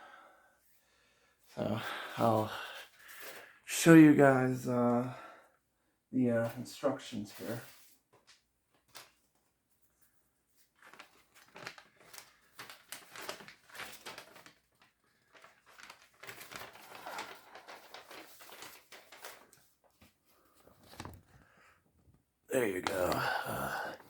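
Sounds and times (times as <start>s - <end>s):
paper rustling and crinkling: 6.4s - 24.0s.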